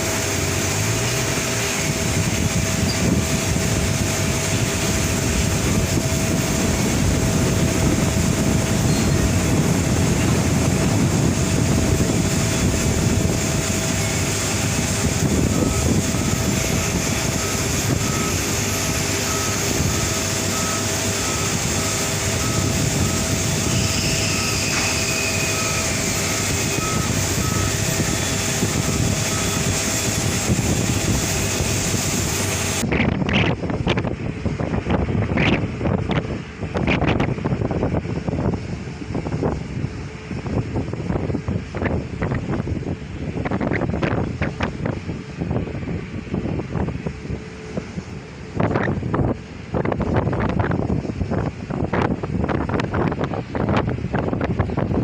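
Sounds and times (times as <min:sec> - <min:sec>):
jet engines running: 0:00.0 - 0:55.0.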